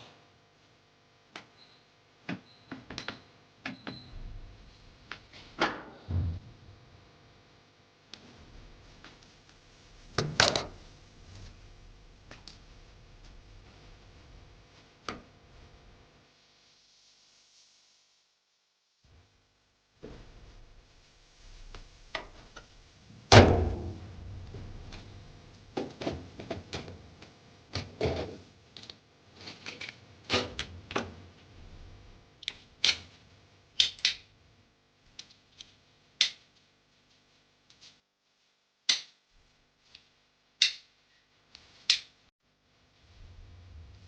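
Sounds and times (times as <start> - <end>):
panels and parts clicking and rattling: 10.2 - 11.4.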